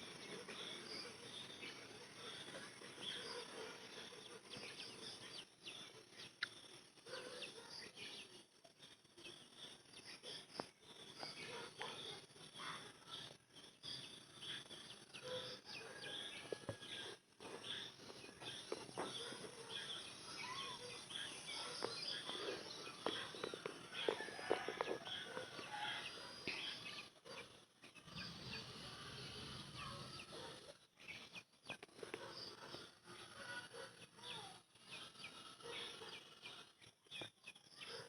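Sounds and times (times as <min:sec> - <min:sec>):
birds chirping and calling: 0:10.0 - 0:38.0.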